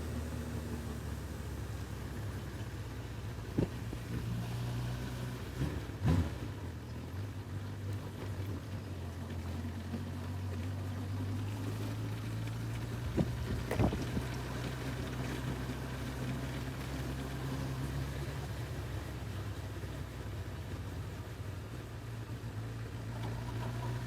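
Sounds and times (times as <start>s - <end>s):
motorcycle engine running: 0.0s - 24.0s
wind noise on microphone: 3.5s - 4.3s, 13.0s - 14.4s.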